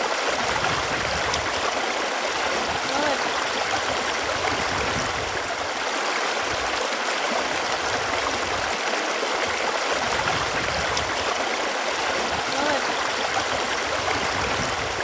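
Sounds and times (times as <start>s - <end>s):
running water gurgling: 0.0s - 15.0s.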